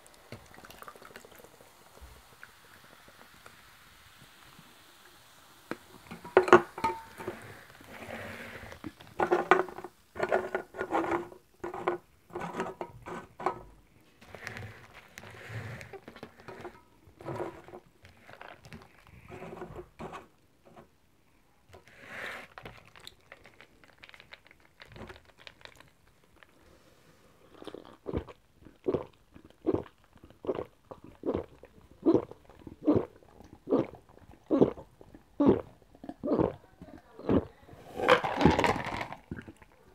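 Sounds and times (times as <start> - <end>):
carbonation hiss: 0.0 - 10.2
gulping drink: 27.5 - 37.6, 38.2 - 39.9.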